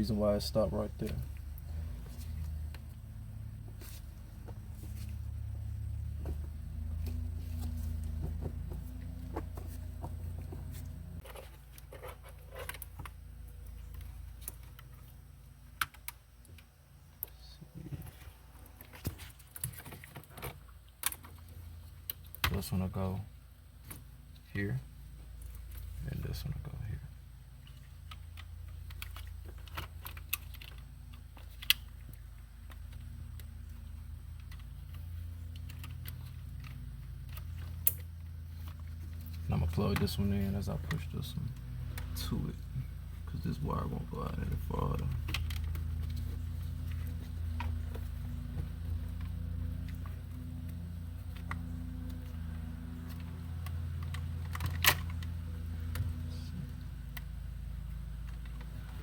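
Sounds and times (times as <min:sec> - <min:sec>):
steady low hum: 0:00.0 - 0:59.0
plastic parts clicking and rustling: 0:27.6 - 0:42.3, 0:43.2 - 0:56.3.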